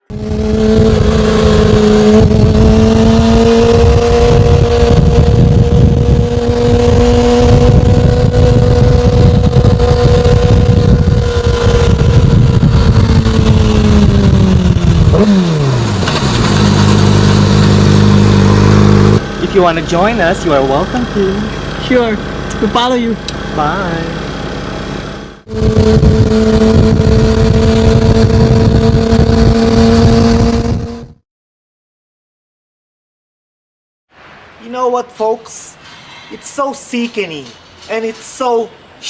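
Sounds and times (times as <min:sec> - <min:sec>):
motorcycle engine running: 0:00.0 - 0:31.0
wind noise rumbling: 0:00.1 - 0:19.4, 0:25.5 - 0:31.1.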